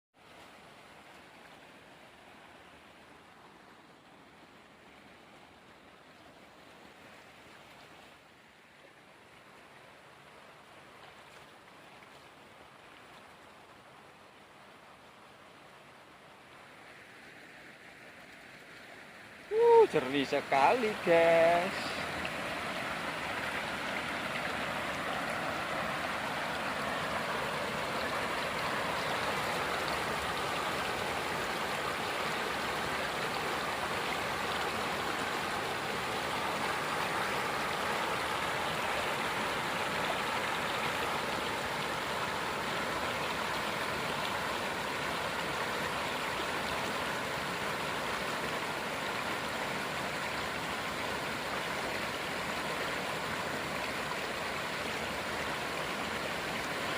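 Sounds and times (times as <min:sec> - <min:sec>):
shallow river water rushing: 0:00.2 - 0:56.9.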